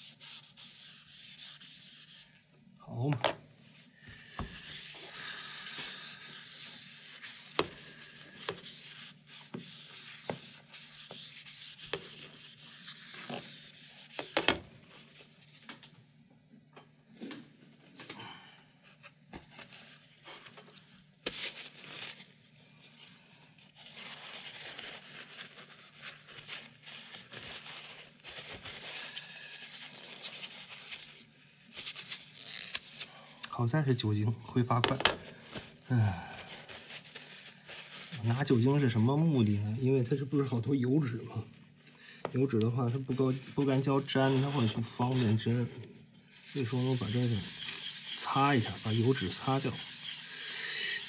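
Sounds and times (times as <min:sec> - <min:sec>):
hand rubbing surface: 0:03.6 - 0:14.4, 0:46.3 - 0:51.0.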